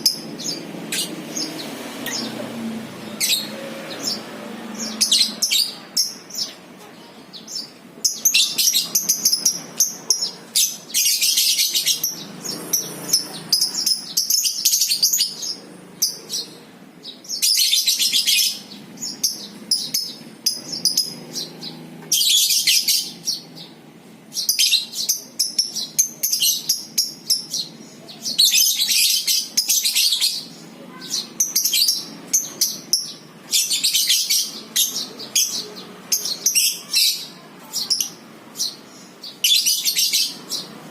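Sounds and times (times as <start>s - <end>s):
lovebirds chattering: 0.0s - 40.9s.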